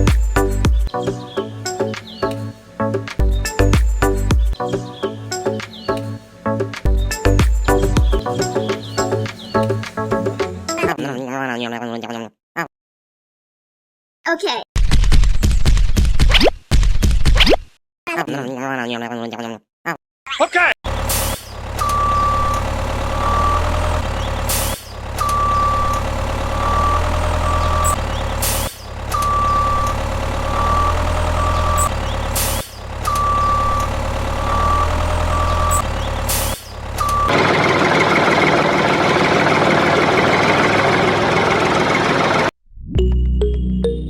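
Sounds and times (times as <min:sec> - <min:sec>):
engine idling: 0:00.0 - 0:01.3, 0:20.9 - 0:42.5
truck reversing alarm beeping: 0:21.0 - 0:44.0.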